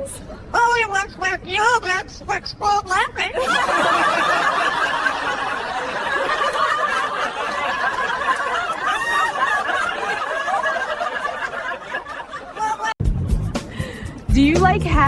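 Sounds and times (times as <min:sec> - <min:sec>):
people laughing and snickering: 0:03.3 - 0:14.3.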